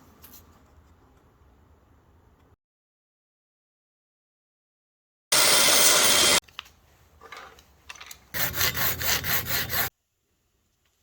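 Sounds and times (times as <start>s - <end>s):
hand tool rasping on wood: 8.4s - 9.9s.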